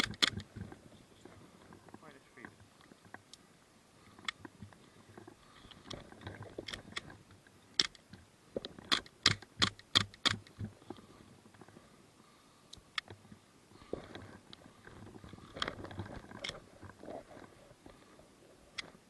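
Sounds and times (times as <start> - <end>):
sharp clicks: 0.0 - 0.6, 7.7 - 8.0, 8.6 - 10.7
faint ticks: 0.0 - 11.9, 12.6 - 19.0.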